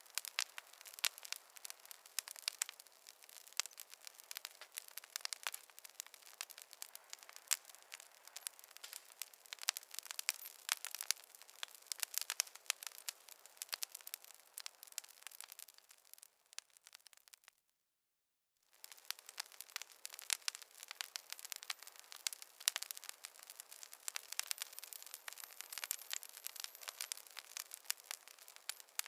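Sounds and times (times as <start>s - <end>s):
wood fire crackling: 0.0s - 17.6s, 18.7s - 29.0s.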